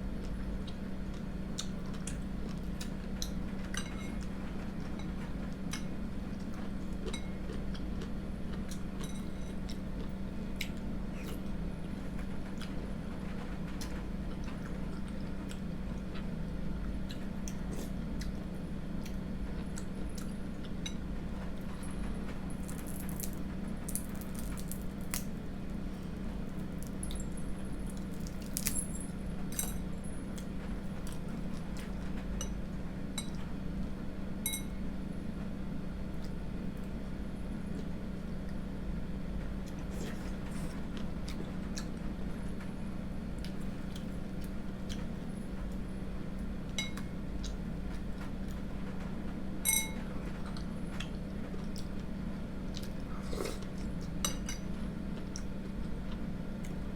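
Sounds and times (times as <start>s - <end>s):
steady low hum: 0.0s - 56.9s
spoon clinking against bowl: 34.5s - 34.7s, 49.7s - 50.1s.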